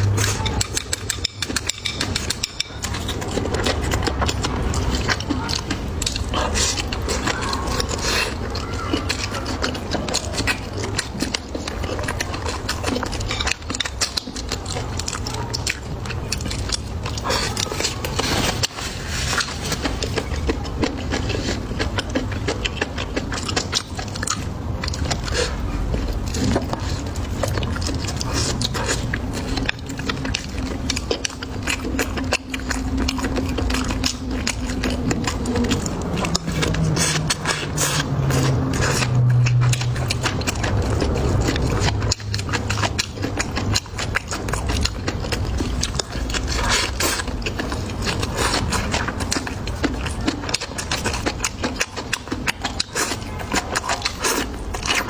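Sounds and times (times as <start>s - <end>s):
chewing and crunching: 0.0s - 55.0s
low steady hum: 0.0s - 55.0s.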